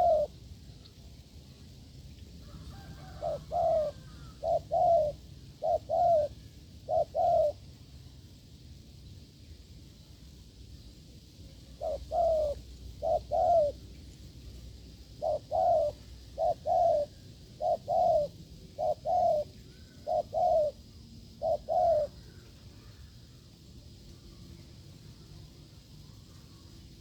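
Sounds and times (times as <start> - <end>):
dove cooing: 0.0 - 0.4, 2.4 - 7.7, 11.6 - 14.0, 14.6 - 23.2.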